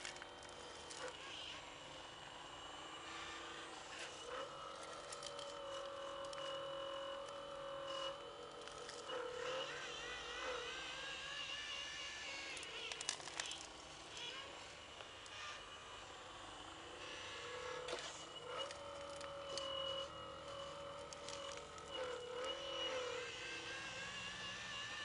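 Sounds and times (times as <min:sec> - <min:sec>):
electric motors whining: 0:00.0 - 0:25.0.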